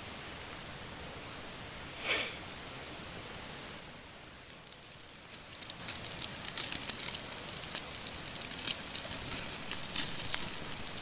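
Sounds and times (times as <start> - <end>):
pork sizzling on a grill: 4.2 - 11.0.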